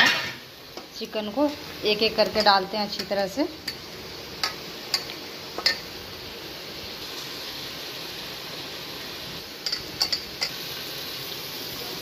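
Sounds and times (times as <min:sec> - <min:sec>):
food frying in hot oil: 0:00.0 - 0:12.0.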